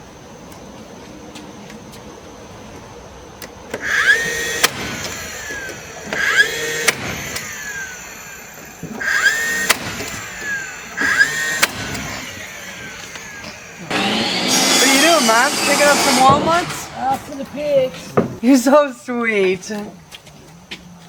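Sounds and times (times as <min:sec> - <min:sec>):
power drill driving screws: 0:03.7 - 0:18.2
screw seating click: 0:08.8 - 0:14.3.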